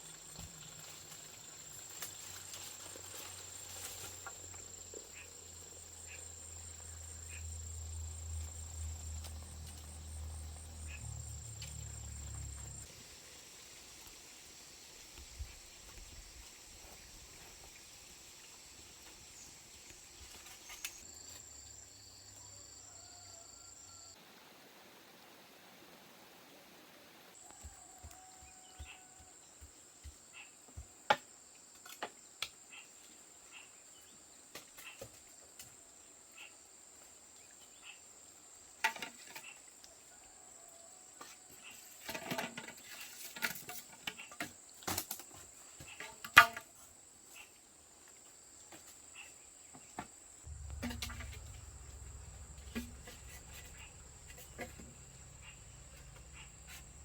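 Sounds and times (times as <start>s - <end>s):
high insect drone: 0.0s - 17.7s, 50.5s - 57.0s
low rumble: 7.6s - 12.8s, 50.5s - 57.0s.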